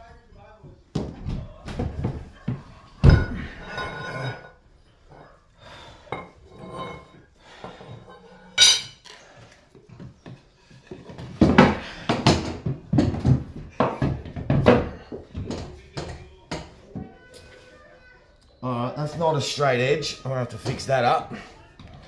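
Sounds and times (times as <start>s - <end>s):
metal clinks: 8.2s - 9.0s.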